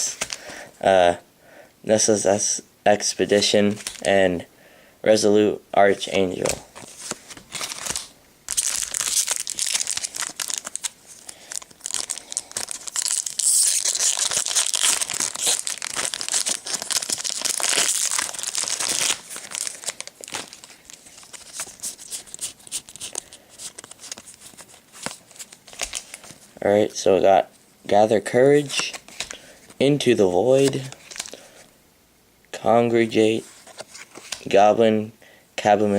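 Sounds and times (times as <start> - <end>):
foil wrapper tearing and crinkling: 6.8 - 26.4, 30.6 - 31.4.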